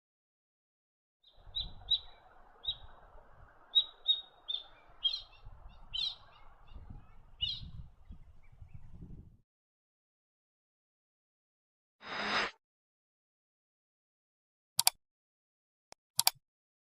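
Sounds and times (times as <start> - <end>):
bird chirping: 1.2 - 9.2.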